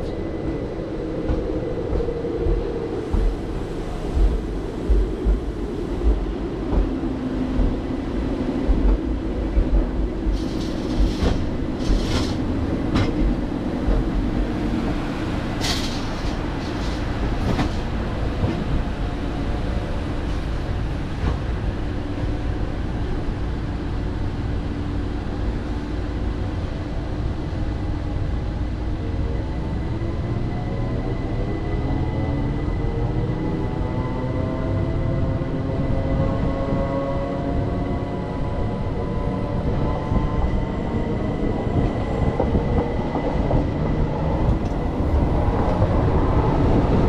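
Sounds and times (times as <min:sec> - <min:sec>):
train rumbling: 0:00.0 - 0:47.0.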